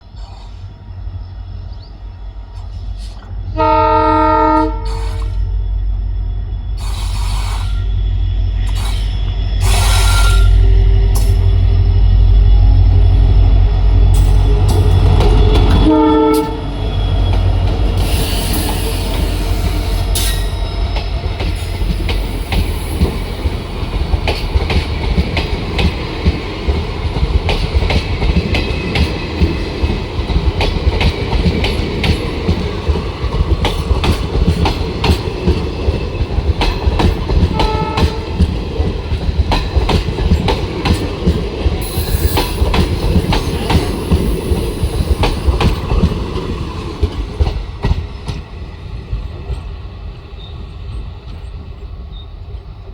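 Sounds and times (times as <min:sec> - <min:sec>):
train wheels clicking on rail joints: 0:00.0 - 0:03.8, 0:04.6 - 0:52.2
locomotive engine rumbling: 0:00.0 - 0:47.8
train horn: 0:03.5 - 0:05.5, 0:09.6 - 0:11.6, 0:14.1 - 0:17.0, 0:37.4 - 0:38.6.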